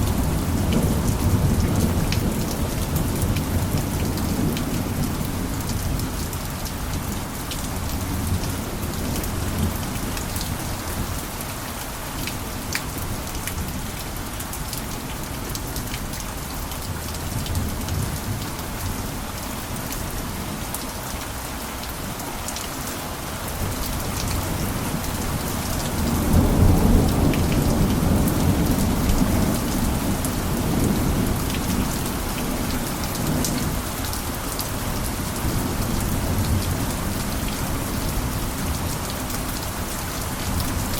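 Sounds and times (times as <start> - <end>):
steady rain falling: 0.0 - 40.9
rumble of thunder: 23.7 - 33.8.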